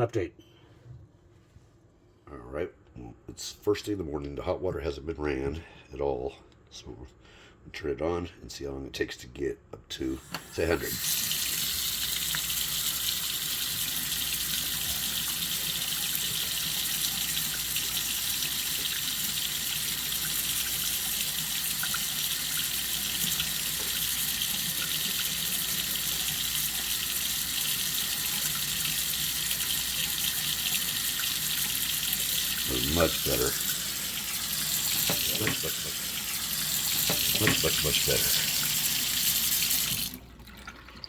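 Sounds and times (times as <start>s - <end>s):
faucet water running into sink: 10.2s - 41.0s.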